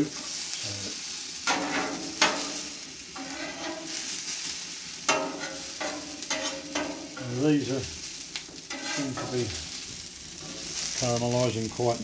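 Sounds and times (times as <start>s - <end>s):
onions sizzling on griddle: 0.0s - 12.0s
metal spatula scraping and tapping: 1.5s - 4.0s, 5.1s - 7.3s, 8.4s - 9.6s.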